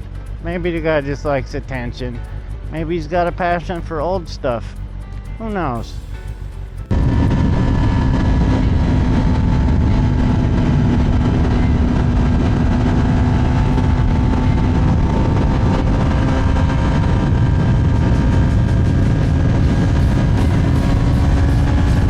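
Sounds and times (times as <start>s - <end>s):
motorcycle engine cruising: 0.0s - 3.5s, 6.0s - 22.0s
wind rush on microphone: 6.8s - 22.0s.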